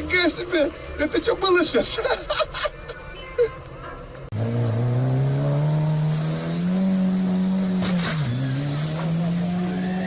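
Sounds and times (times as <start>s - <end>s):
car engine accelerating: 4.3s - 10.0s.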